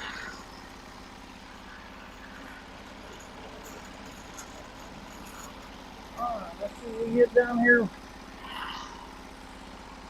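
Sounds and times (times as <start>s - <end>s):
sawmill engine idling: 0.0s - 10.0s.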